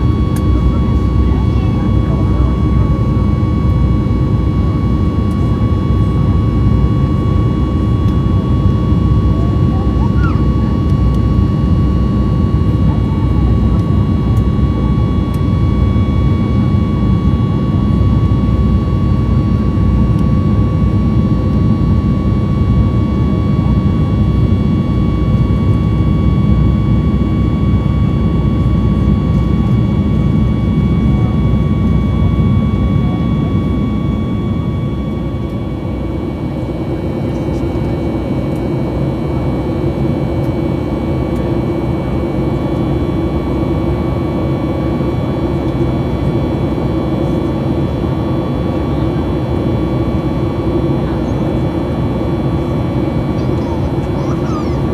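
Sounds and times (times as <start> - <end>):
jet engines running: 0.0 - 54.9.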